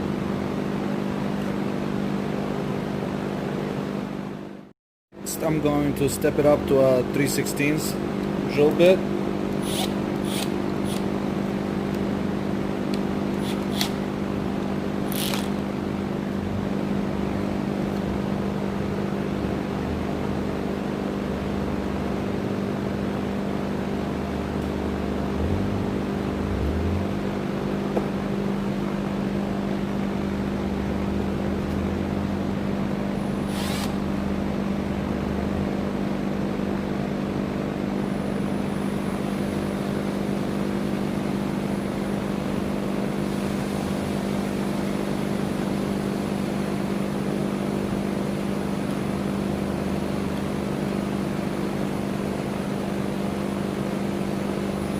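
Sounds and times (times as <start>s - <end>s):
electric drill boring through steel: 9.6s - 11.1s, 15.1s - 15.5s, 33.2s - 34.0s.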